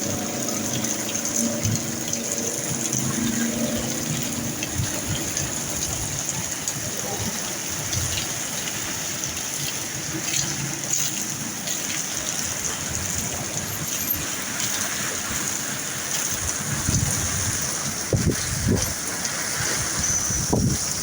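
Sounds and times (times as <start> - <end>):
low rumbles: 0.0 - 9.4
rain pouring: 0.0 - 21.0.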